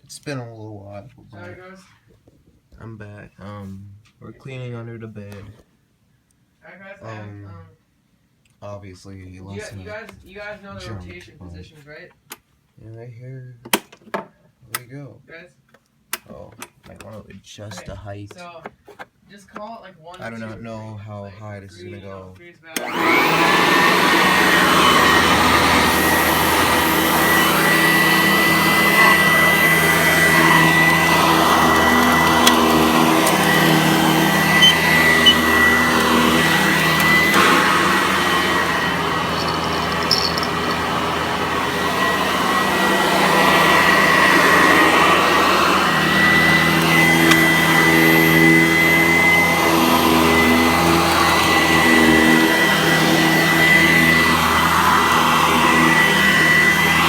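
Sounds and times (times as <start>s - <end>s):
vacuum cleaner running: 22.8s - 57.0s.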